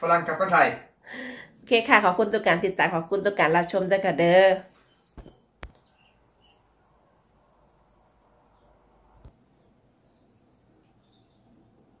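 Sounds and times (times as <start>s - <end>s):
faint birdsong: 3.1s - 12.0s.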